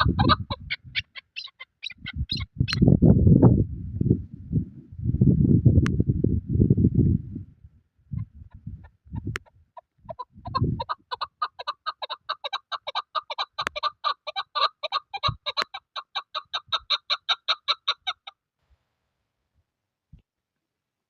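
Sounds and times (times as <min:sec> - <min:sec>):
partridge clucking call: 0:00.0 - 0:02.8, 0:09.1 - 0:18.3.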